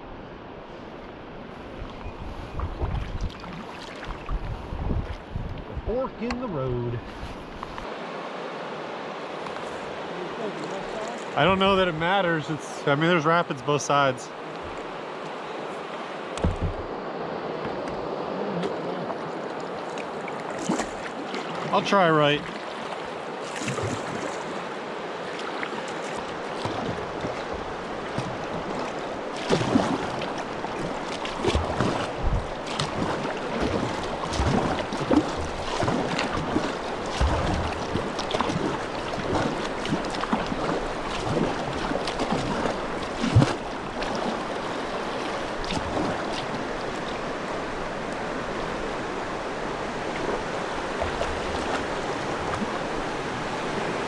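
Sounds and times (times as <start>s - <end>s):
water splashes: 0.7s - 54.0s
river rapids rushing: 7.8s - 54.0s
kayak knocks: 16.4s - 16.9s, 25.9s - 52.4s.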